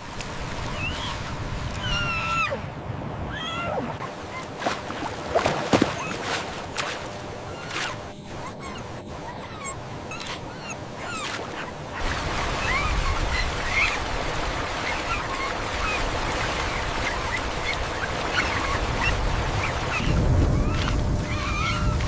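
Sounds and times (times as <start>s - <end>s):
floodwater rushing: 3.3s - 22.0s
puppies whimpering: 7.5s - 14.1s, 14.7s - 22.0s.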